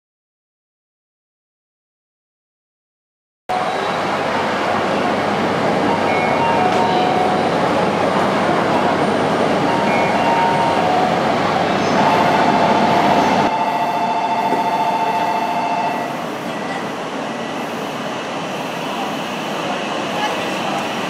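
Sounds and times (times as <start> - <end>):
train rushing past: 3.5 - 21.0
steady two-pitch tone: 9.6 - 11.2, 12.0 - 16.7.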